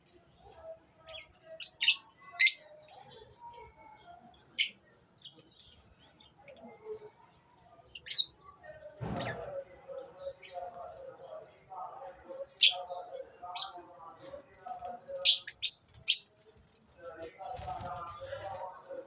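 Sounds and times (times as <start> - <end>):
soft bird chatter: 0.0 - 19.0.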